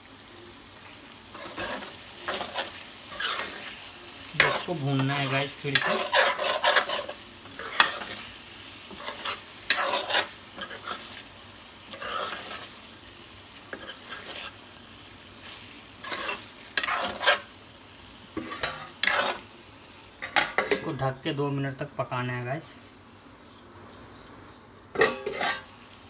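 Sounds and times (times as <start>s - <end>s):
food sizzling: 0.0s - 26.0s
spatula scraping and stirring: 1.3s - 19.5s, 25.0s - 25.8s.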